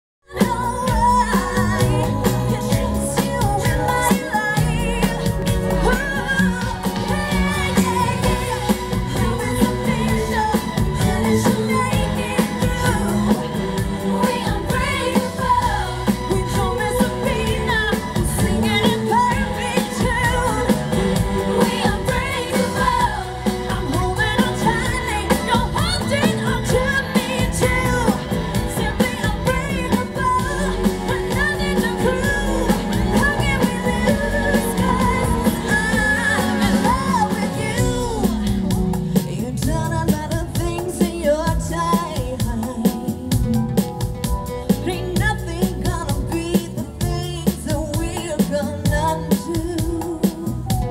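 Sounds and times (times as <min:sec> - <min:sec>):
live pop music with singing: 0:00.2 - 0:50.9.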